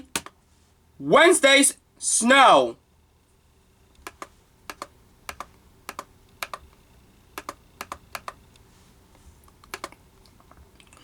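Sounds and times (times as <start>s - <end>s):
typing on a computer keyboard: 4.0s - 6.6s, 7.4s - 8.4s, 9.6s - 10.0s.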